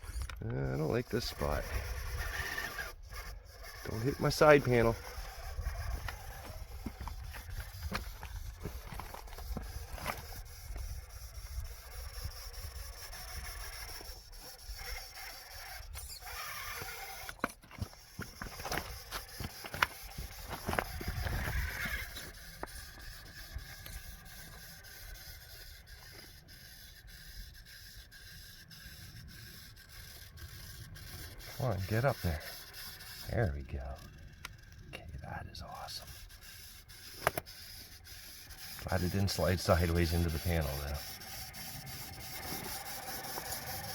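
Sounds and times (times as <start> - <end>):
electric motor whining: 0.0 - 34.9, 35.6 - 43.9
tyres scraping on rock: 0.0 - 43.9
wind on microphone: 20.1 - 22.2.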